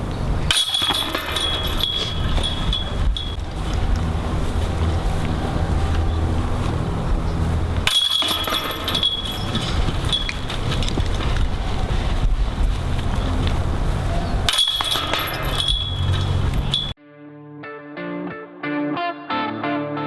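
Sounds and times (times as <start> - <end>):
wind rumbling on microphone: 0.0 - 16.9
metallic chains jingling: 0.5 - 5.4, 6.2 - 17.0.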